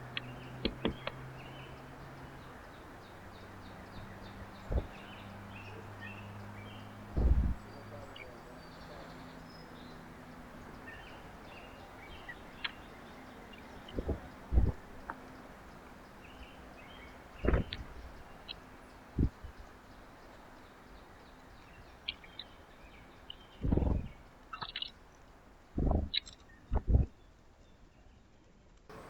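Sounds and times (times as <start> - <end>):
birds chirping: 0.0 - 28.3
low steady hum: 0.0 - 29.0
loud thump: 7.2 - 7.6
sharp knocks: 7.2 - 7.6.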